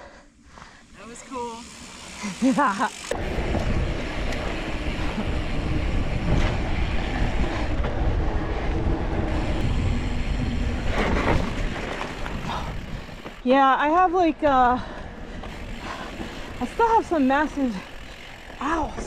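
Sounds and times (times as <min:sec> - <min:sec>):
bike rattling: 0:00.3 - 0:19.0
bike tyres rumbling on dirt: 0:00.8 - 0:19.0
wind noise on microphone: 0:03.1 - 0:13.4.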